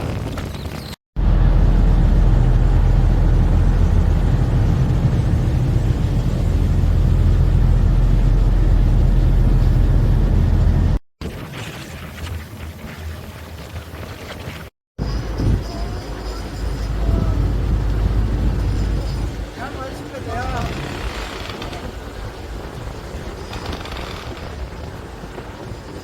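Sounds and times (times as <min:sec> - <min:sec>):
low engine drone: 0:01.2 - 0:11.0.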